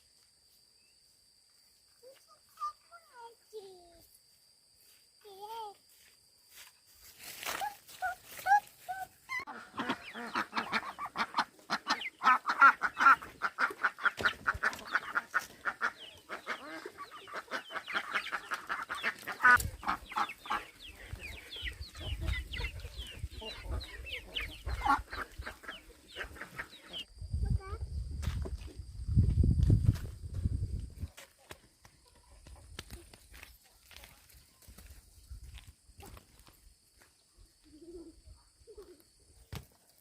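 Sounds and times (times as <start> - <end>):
chickens clucking: 7.9 - 27.1.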